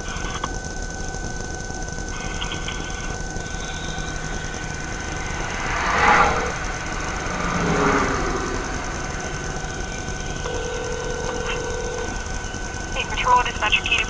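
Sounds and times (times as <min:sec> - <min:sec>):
steady background hum: 0:00.0 - 0:14.0
vehicles passing on road: 0:04.0 - 0:12.2.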